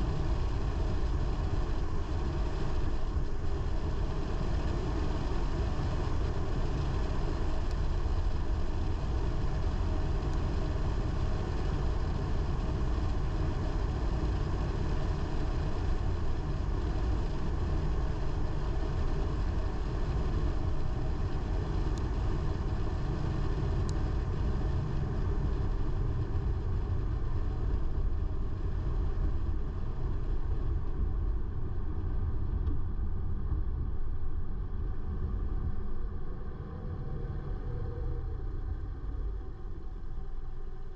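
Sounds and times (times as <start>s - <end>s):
car engine and tyre rumble: 0.0s - 40.9s.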